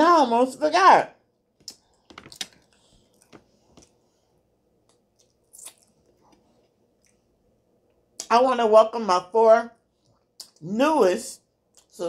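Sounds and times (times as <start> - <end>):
wet mouth clicks chewing: 4.9 - 6.0.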